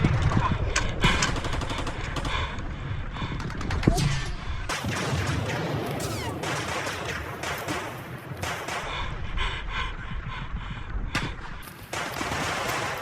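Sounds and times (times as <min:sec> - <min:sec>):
airsoft rifles firing: 0:04.7 - 0:08.9, 0:11.2 - 0:13.0.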